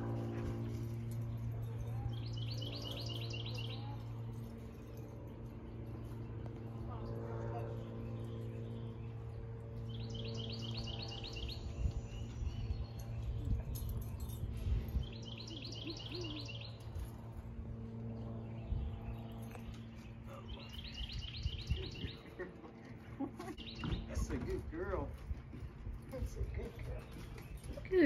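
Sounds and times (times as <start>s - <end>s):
steady low hum: 0.0s - 28.0s
songbird singing: 1.1s - 4.5s, 7.6s - 17.2s, 17.8s - 22.5s, 23.4s - 25.1s, 26.0s - 28.0s.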